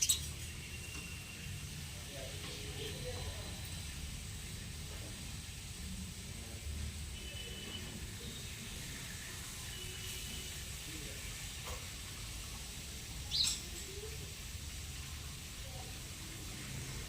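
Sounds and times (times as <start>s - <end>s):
birds chirping: 0.0s - 1.6s.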